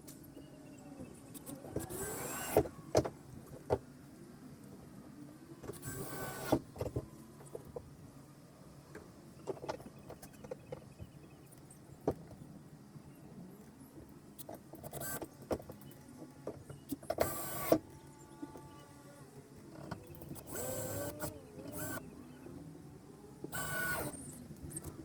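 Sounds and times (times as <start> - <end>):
small motor whirring: 1.3 - 3.0, 5.7 - 6.9, 14.8 - 15.3, 17.0 - 22.5, 23.3 - 25.0.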